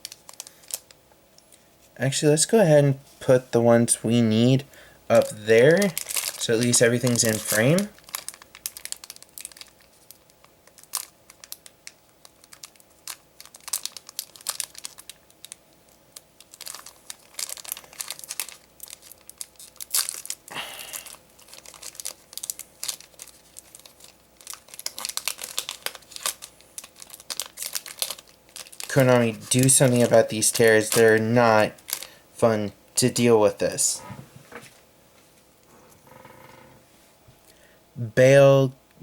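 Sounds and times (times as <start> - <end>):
foil wrapper crinkling and tearing: 0.0 - 1.0, 5.1 - 32.2
cards being handled: 5.1 - 8.0, 28.8 - 31.3.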